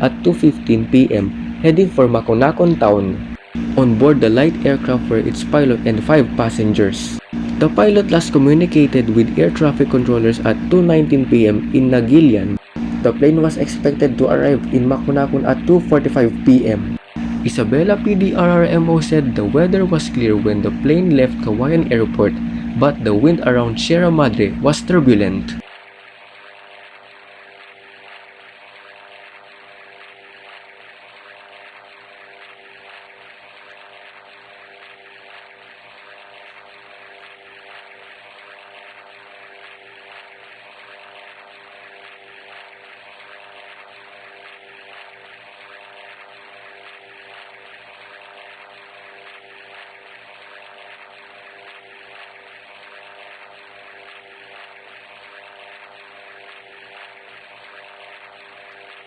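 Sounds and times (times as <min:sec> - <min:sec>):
steady engine drone: 0:00.0 - 0:25.7.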